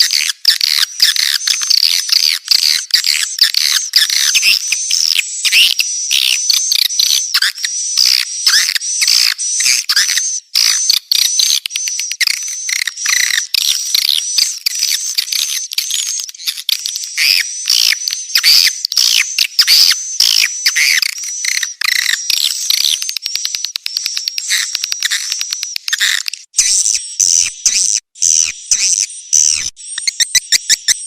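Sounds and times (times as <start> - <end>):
rapid clicks: 20.7 - 26.7.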